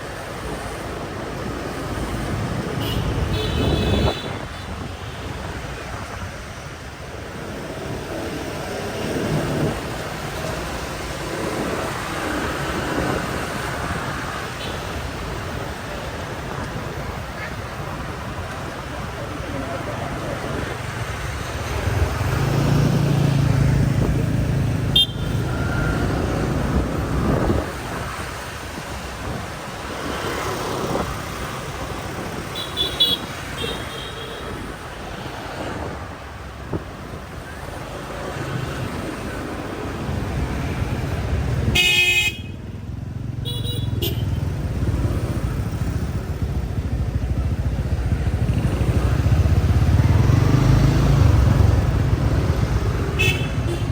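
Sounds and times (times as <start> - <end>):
motorbike engine and road rumble: 0.0 - 53.9
scooter horn toots: 2.8 - 4.8, 24.9 - 25.9, 32.6 - 34.6, 41.7 - 42.6, 43.4 - 44.4, 53.1 - 53.9.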